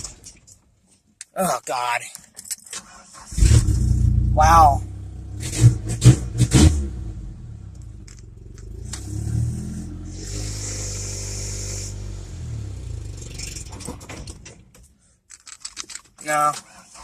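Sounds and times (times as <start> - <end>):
hiss: 10.1 - 12.1.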